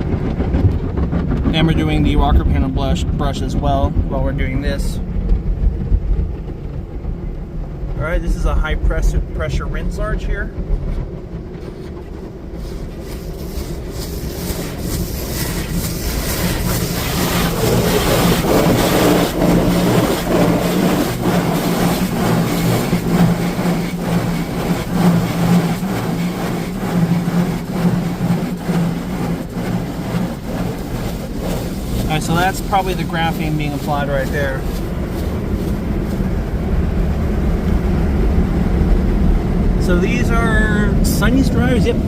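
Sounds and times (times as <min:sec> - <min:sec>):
constant low hum: 0:00.0 - 0:42.0
water jets blasting a car: 0:12.1 - 0:38.2, 0:39.8 - 0:42.0.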